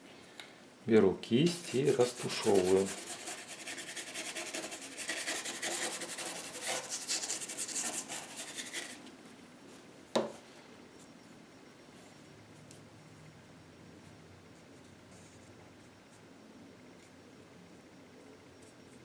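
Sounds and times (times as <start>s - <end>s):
paintbrush scratchy strokes: 1.5s - 9.0s.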